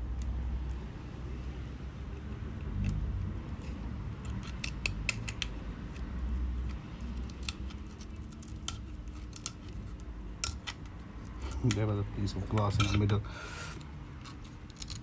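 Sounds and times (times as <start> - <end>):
metal blade scraping glass: 12.6 - 15.0.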